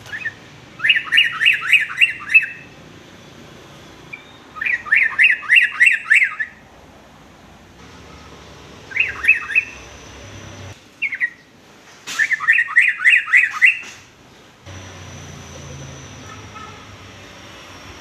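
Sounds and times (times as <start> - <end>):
bird chirping: 0.0 - 2.8, 4.1 - 6.6, 8.9 - 11.5, 12.2 - 14.0.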